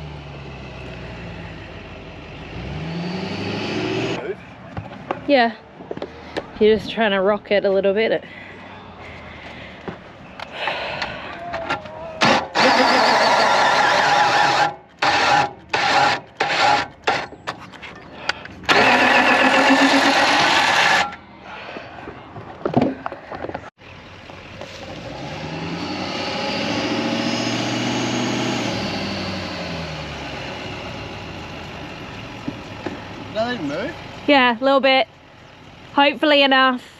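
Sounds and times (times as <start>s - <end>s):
truck engine revving: 0.0s - 4.5s, 12.2s - 17.3s, 18.7s - 21.2s, 23.9s - 34.5s.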